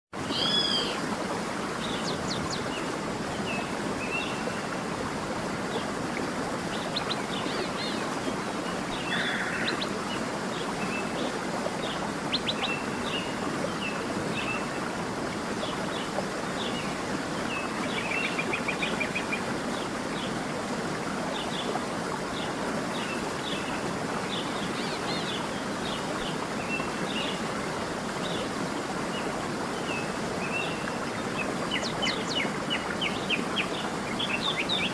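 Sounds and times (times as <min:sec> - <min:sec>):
running stream water: 0:00.1 - 0:34.9
small birds chirping: 0:01.8 - 0:04.4.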